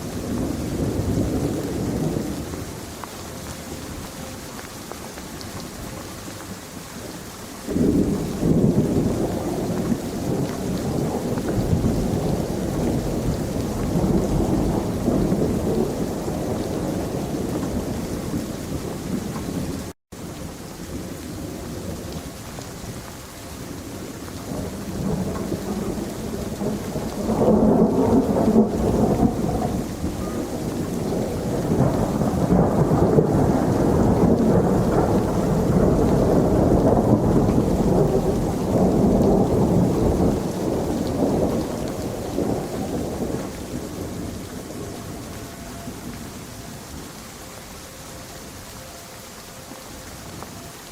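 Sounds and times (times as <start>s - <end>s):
rolling thunder: 0.0s - 4.5s, 7.7s - 47.4s
steady rain: 0.0s - 50.9s.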